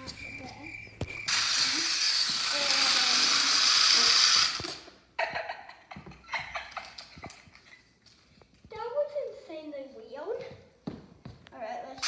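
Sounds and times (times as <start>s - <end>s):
toy helicopter motor whirring: 1.0s - 4.9s.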